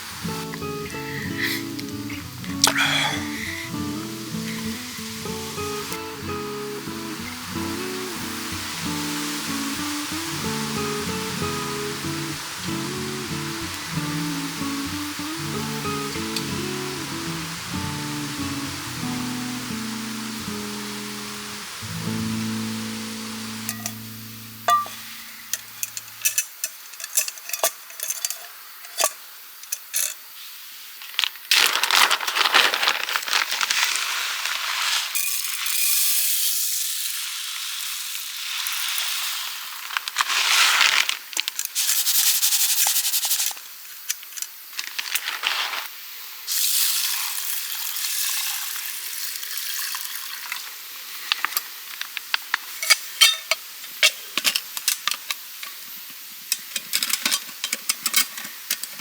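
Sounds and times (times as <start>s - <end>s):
food sizzling in a pan: 0.0s - 59.0s
pops and crackles: 0.4s - 3.8s.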